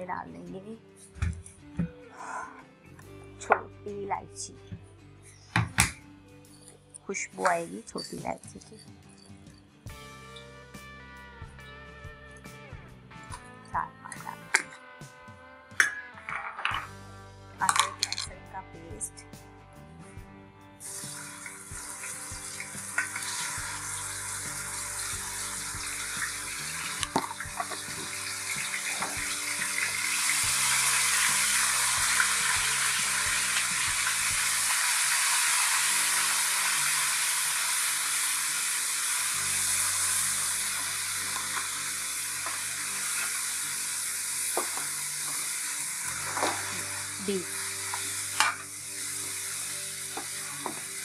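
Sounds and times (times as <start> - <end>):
spices sizzling in hot oil: 20.8 - 51.0.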